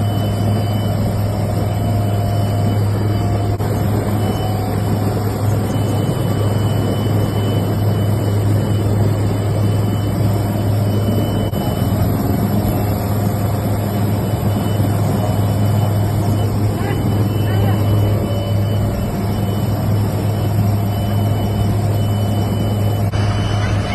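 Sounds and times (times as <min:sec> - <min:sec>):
engine droning: 0:00.0 - 0:23.9.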